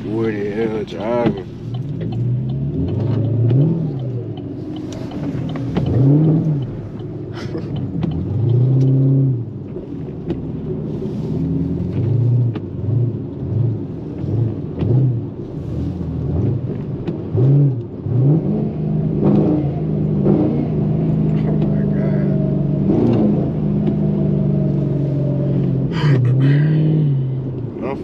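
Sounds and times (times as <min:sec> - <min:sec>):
car engine while driving: 0:00.0 - 0:28.0.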